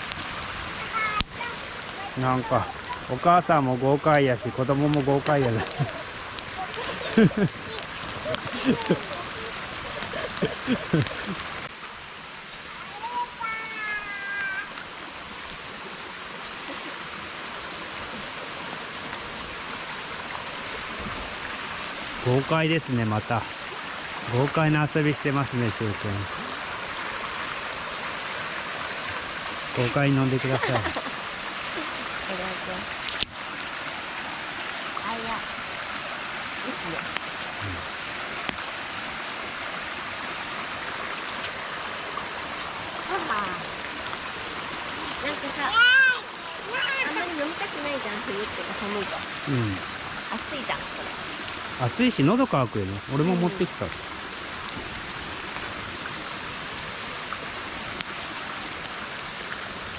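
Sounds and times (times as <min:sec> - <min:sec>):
burning firewood snapping: 0:00.0 - 0:00.4, 0:01.1 - 0:11.8, 0:14.4 - 0:15.6, 0:32.9 - 0:33.8, 0:37.0 - 0:37.6, 0:38.3 - 0:39.2, 0:42.5 - 0:44.3, 0:48.3 - 0:50.4, 0:53.8 - 0:55.8, 0:58.0 - 0:59.0
stream water flowing: 0:00.0 - 0:59.9.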